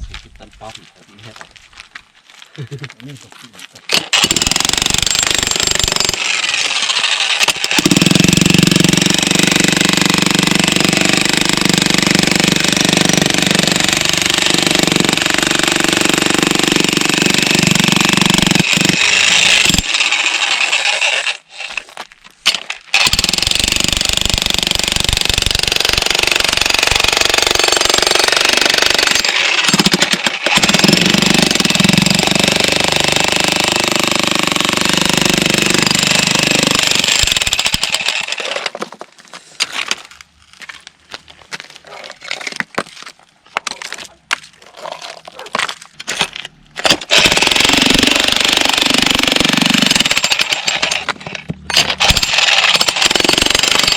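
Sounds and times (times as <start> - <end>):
jackhammer hammering stone: 3.9 - 21.8, 22.5 - 38.8, 45.6 - 53.9.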